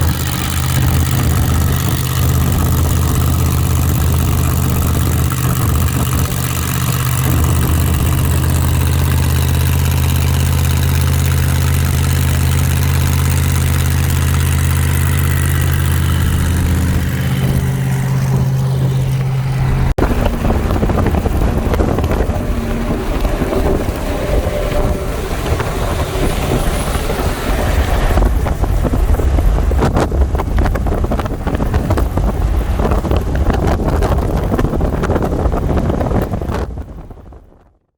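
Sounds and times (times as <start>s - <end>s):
car engine idling: 0.0s - 36.5s
vehicle driving: 0.0s - 37.2s
wind rumbling on microphone: 0.0s - 37.9s.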